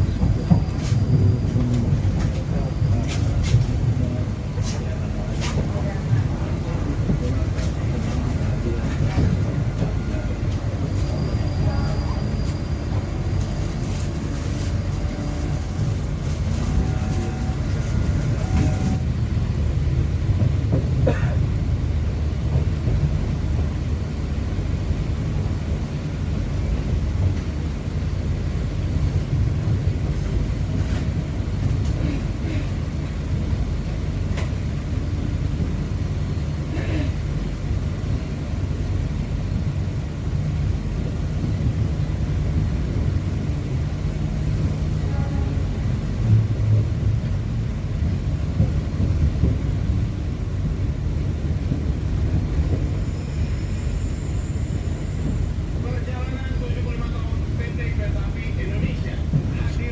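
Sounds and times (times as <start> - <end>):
train rumble inside carriage: 0.0 - 59.9
faint squeaks and clicks: 10.5 - 13.6.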